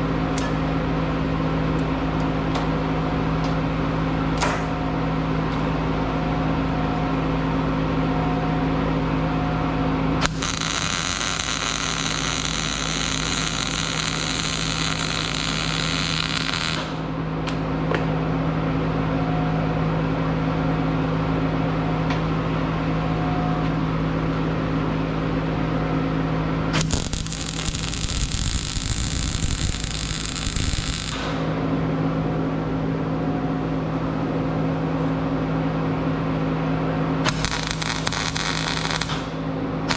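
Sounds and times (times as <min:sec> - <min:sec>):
electrical hum: 0:00.0 - 0:39.9
welder arc crackling and hissing: 0:10.2 - 0:17.1, 0:26.7 - 0:31.6, 0:37.2 - 0:39.9.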